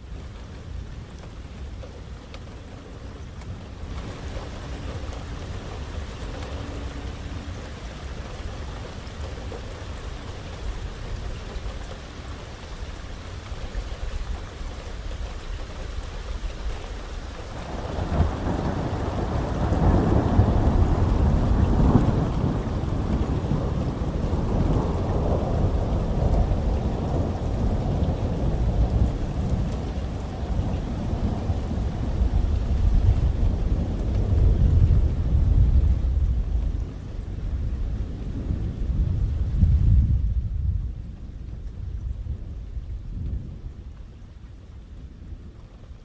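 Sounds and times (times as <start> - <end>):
steady rain: 0.0 - 46.0
low roll of thunder: 16.6 - 46.0.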